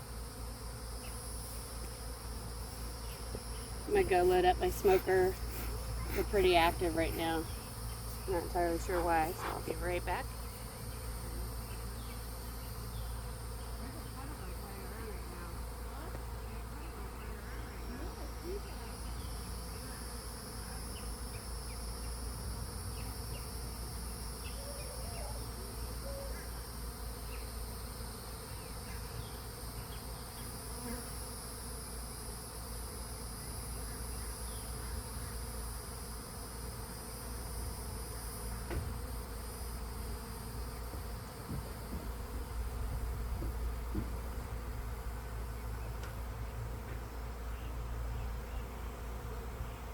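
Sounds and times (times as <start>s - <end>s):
honeybees buzzing: 0.0s - 49.9s.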